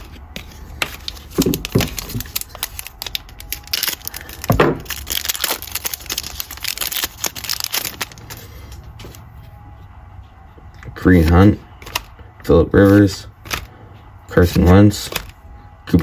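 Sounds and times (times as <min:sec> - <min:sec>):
foil wrapper crinkling and tearing: 0:00.4 - 0:08.5.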